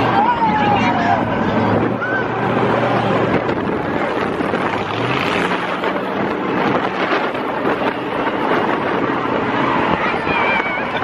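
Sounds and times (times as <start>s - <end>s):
loud truck engine running: 0.0s - 11.0s.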